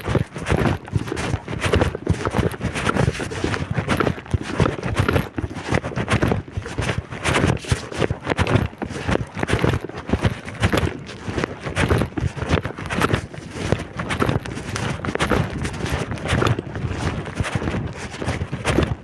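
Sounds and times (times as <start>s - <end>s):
footsteps: 8.7s - 19.0s.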